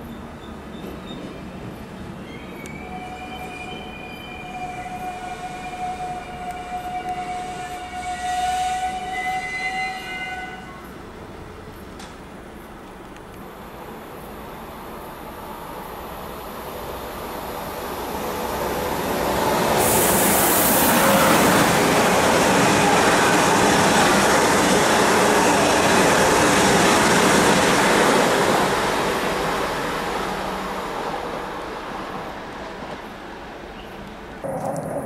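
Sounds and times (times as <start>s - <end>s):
train rushing past: 13.6s - 33.7s.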